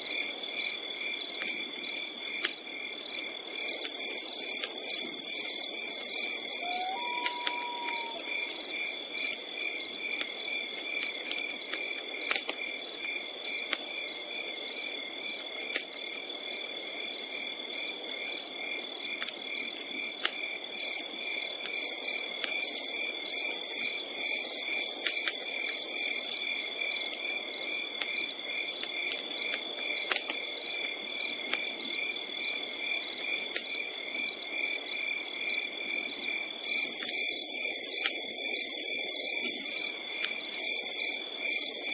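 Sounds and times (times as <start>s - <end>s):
campfire crackling and popping: 1.4s - 5.4s, 7.2s - 22.9s, 24.4s - 26.4s, 27.0s - 34.2s, 40.1s - 40.5s
insects trilling: 3.6s - 10.0s, 18.8s - 26.7s, 32.5s - 41.9s.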